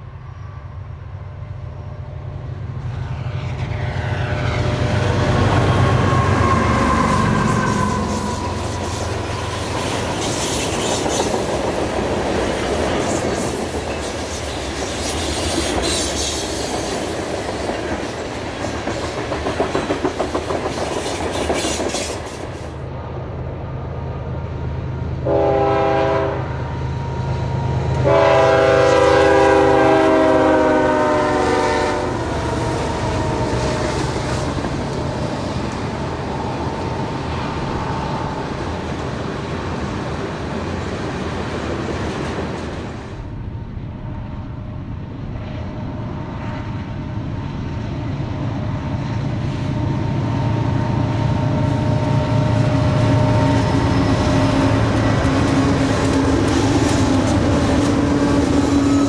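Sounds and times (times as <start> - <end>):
diesel locomotive engine rumble: 0.0 - 59.0
train air horn blasts: 3.8 - 10.8, 25.2 - 26.8, 28.0 - 33.8.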